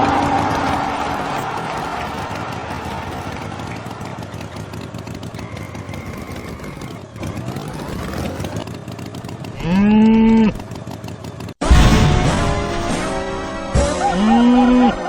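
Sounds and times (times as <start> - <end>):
cow mooing: 9.6 - 10.6, 14.0 - 15.0.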